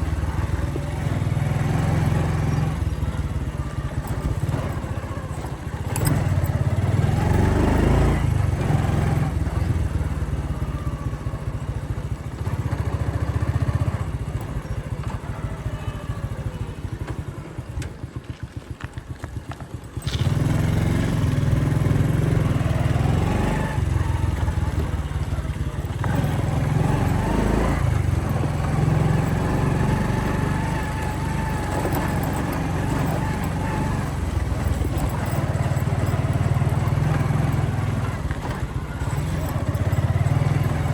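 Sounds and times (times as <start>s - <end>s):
motorcycle engine running: 0.0s - 40.9s
wind and road noise: 0.0s - 40.9s.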